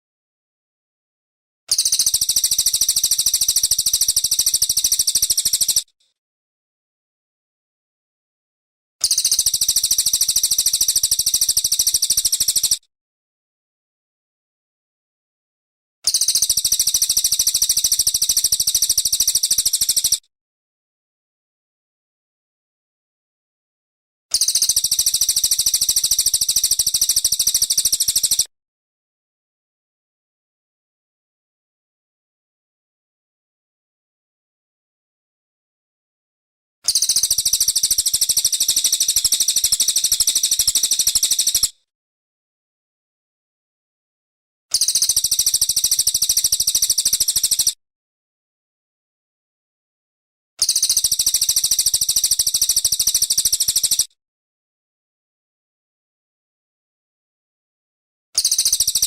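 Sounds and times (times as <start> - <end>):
bird high-pitched trill: 1.7 - 5.9, 9.0 - 12.8, 16.1 - 20.2, 24.3 - 28.5, 36.9 - 41.7, 44.7 - 47.8, 50.6 - 54.1, 58.4 - 59.0.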